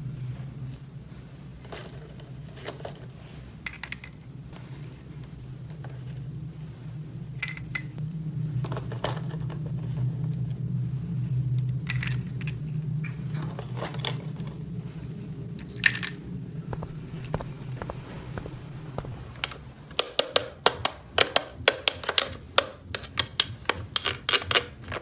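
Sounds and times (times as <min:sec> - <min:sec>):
steady low hum: 0:00.0 - 0:25.0
plastic toy pieces clattering: 0:03.7 - 0:04.2.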